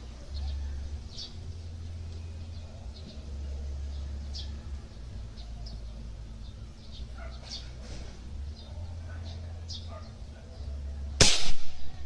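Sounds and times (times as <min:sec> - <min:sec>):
bird chirping: 0:00.0 - 0:07.9.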